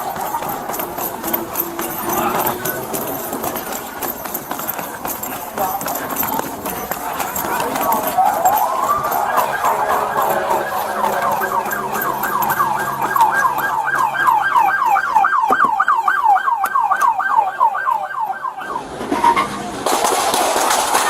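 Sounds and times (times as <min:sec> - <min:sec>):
police siren yelping: 0:00.0 - 0:04.0, 0:07.3 - 0:19.5.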